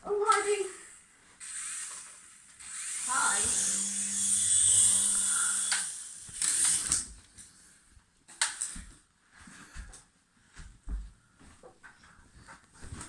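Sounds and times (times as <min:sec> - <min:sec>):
toy helicopter motor whirring: 0:00.3 - 0:07.1.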